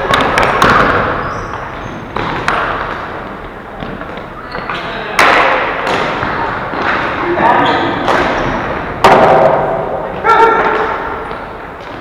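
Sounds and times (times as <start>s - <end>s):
hockey sticks knocking ball: 0.0s - 7.2s, 8.0s - 12.0s.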